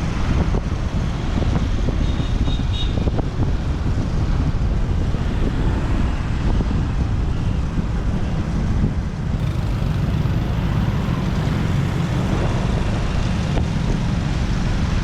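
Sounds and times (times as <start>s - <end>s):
motorbike engine rumbling: 9.4s - 14.6s.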